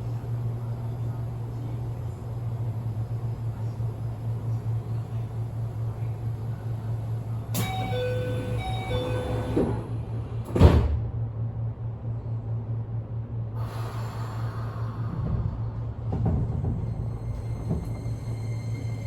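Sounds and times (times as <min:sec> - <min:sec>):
train low hum: 0:00.0 - 0:19.0
two-note door chime: 0:07.6 - 0:09.6
sliding doors closing thump: 0:10.5 - 0:11.1.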